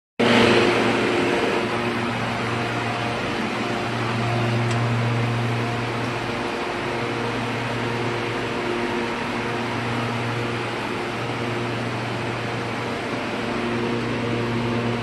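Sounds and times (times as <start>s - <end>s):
compressor low hum: 0.2s - 15.0s
condenser fans rushing: 0.2s - 15.0s.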